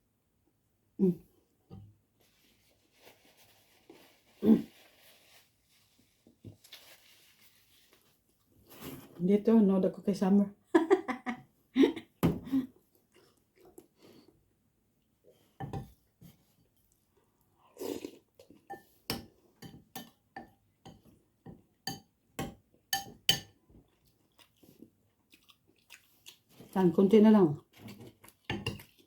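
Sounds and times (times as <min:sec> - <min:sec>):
chewing and mouth noises: 0:12.9 - 0:14.2, 0:23.8 - 0:26.8, 0:27.6 - 0:29.0
cutlery clinking on a plate: 0:21.9 - 0:23.6.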